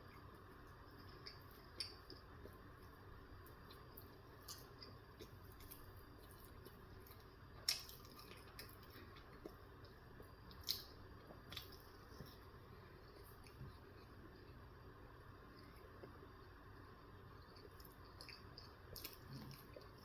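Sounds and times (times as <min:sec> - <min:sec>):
wet chewing and mouth clicks: 0:00.1 - 0:12.4, 0:17.4 - 0:20.0.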